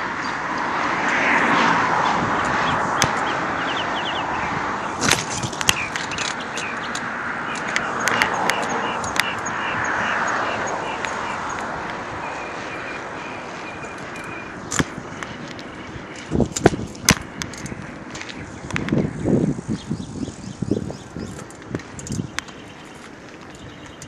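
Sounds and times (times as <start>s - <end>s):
bicycle rolling noise: 0.3s - 24.0s
bike parts clicking and rattling: 5.0s - 9.5s, 13.9s - 19.0s, 20.9s - 24.0s.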